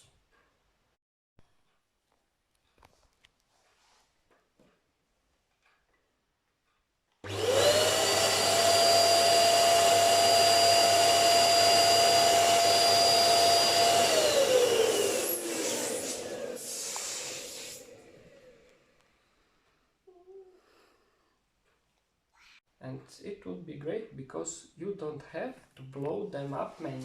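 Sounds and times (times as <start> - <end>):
electric air pump whining: 7.2 - 18.8.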